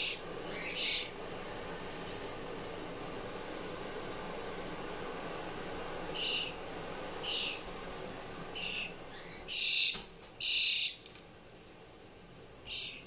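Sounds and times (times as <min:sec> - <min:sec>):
fledgling songbird begging calls: 0:00.0 - 0:01.2, 0:06.1 - 0:06.6, 0:07.2 - 0:07.6, 0:08.5 - 0:11.0, 0:12.7 - 0:13.0.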